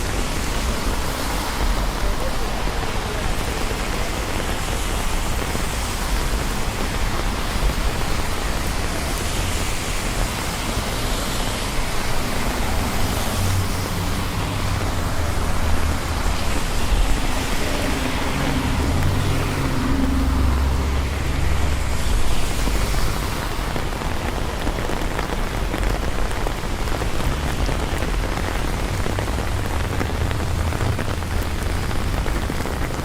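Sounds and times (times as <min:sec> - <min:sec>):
city traffic rumble: 0:00.0 - 0:33.0
rain hiss: 0:00.0 - 0:33.0.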